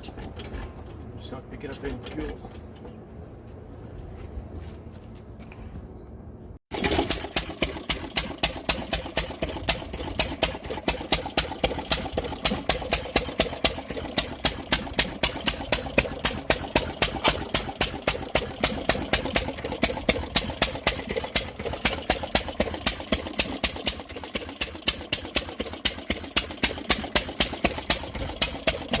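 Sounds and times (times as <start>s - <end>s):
stationary gas engine running: 6.7s - 29.0s.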